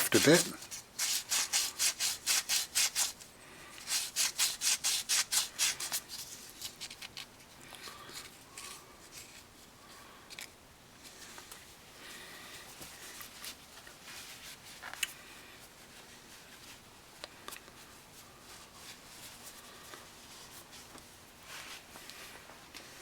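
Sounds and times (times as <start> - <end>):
emery cloth rubbing on metal: 0.0 - 3.2.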